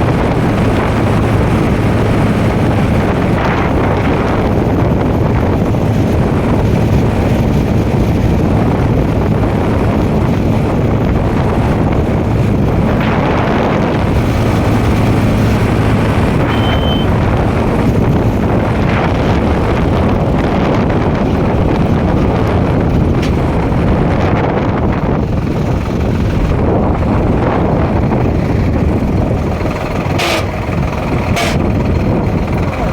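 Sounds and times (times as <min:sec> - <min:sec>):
tractor engine running: 0:00.0 - 0:32.9
wind buffeting microphone: 0:00.0 - 0:32.9
high beep: 0:16.4 - 0:17.1.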